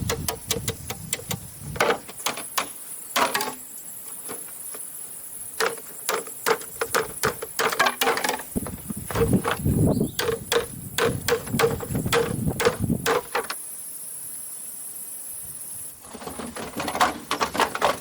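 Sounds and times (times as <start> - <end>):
hand tools knocking bamboo: 0.0 - 3.6, 5.6 - 13.6
steady high hiss: 0.0 - 16.4.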